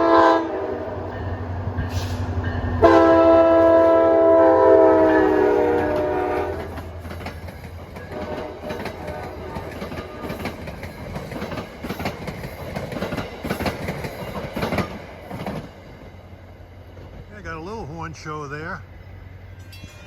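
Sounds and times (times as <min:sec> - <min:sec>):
train horn chord: 0:00.0 - 0:06.8, 0:08.1 - 0:10.2
train wheels clicking over rail joints: 0:05.8 - 0:17.8.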